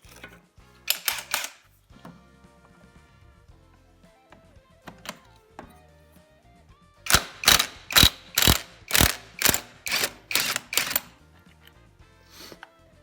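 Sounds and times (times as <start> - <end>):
ratchet wrench clicking: 0.9 - 1.6, 7.1 - 11.2.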